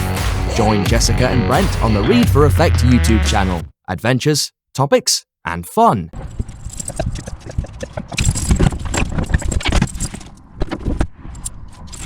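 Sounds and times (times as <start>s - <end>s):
low rumble: 0.8s - 3.7s
metallic jingling and clattering: 6.2s - 10.3s.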